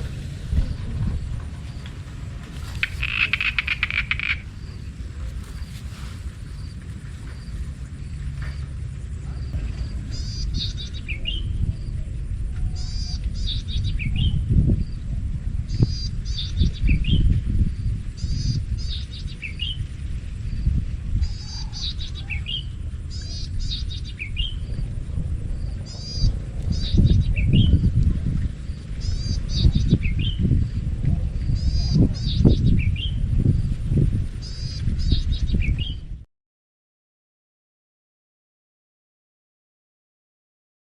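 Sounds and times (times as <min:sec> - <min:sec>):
wind on microphone: 0:00.0 - 0:36.3
songbird trilling: 0:02.5 - 0:05.8, 0:10.1 - 0:11.9, 0:12.6 - 0:15.0, 0:15.7 - 0:19.9, 0:21.2 - 0:24.8, 0:25.8 - 0:28.0, 0:28.7 - 0:30.5, 0:31.4 - 0:33.2, 0:34.4 - 0:36.0.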